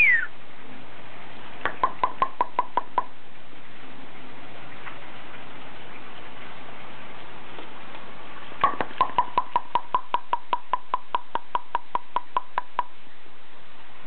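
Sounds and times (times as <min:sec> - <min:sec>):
bird giving short sharp calls: 0:00.0 - 0:00.3.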